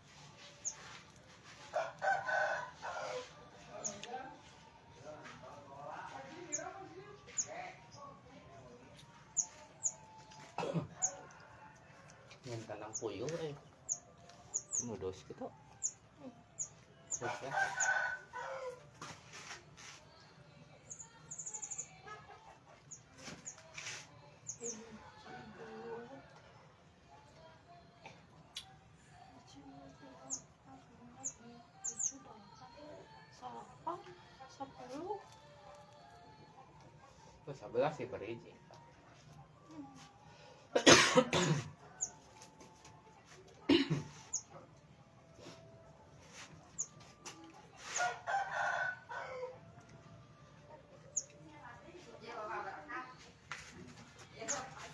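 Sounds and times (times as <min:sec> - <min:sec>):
small birds chirping: 0:00.2 - 0:01.8, 0:02.8 - 0:04.7, 0:05.8 - 0:11.7, 0:12.4 - 0:18.7, 0:20.8 - 0:25.2, 0:28.4 - 0:36.4, 0:41.9 - 0:42.4, 0:44.0 - 0:44.6, 0:51.0 - 0:51.4
rooster crowing: 0:01.7 - 0:04.0, 0:17.2 - 0:18.9, 0:47.8 - 0:50.1.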